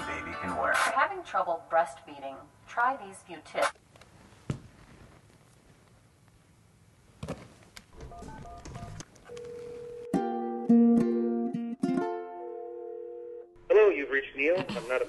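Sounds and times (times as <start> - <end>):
telephone ringing tone: 8.0 - 10.3, 12.5 - 13.5.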